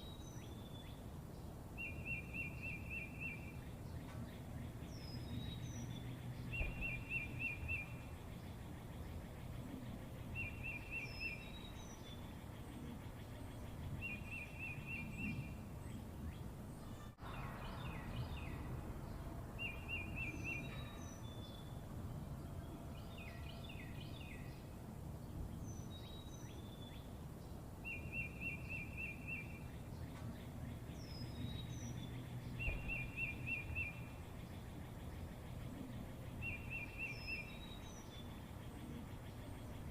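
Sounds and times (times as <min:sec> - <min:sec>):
steady low background rumble: 0:00.0 - 0:39.9
high falling bird chirps: 0:27.8 - 0:39.9.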